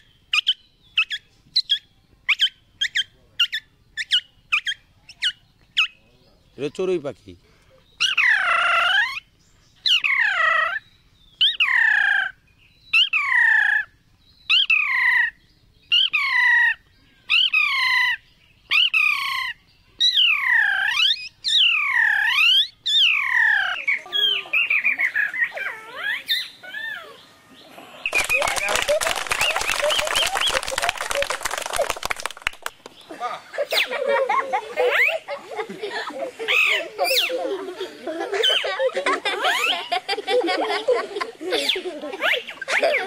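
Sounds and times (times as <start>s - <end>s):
man imitating bird chirp: 26.3s - 30.8s.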